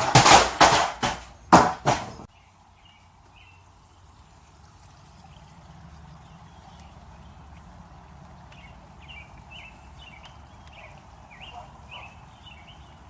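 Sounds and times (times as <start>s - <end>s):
loud knocks and smacks: 0.0s - 2.3s.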